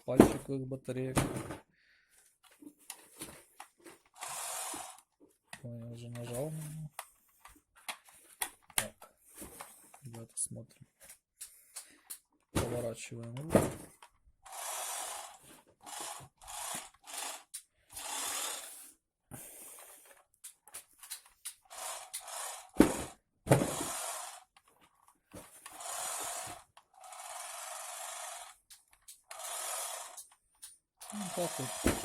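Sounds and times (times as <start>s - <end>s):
toy truck electric motors whirring: 3.6s - 5.2s, 14.4s - 19.0s, 19.7s - 24.8s, 25.4s - 32.0s.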